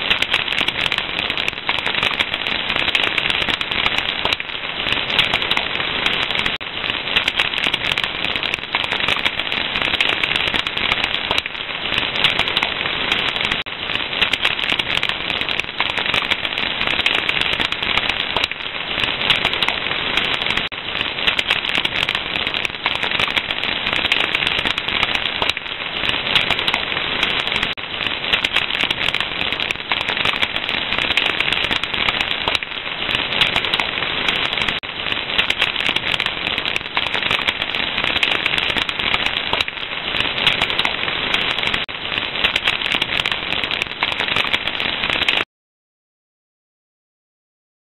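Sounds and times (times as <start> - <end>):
fire crackling: 0.0 - 45.4.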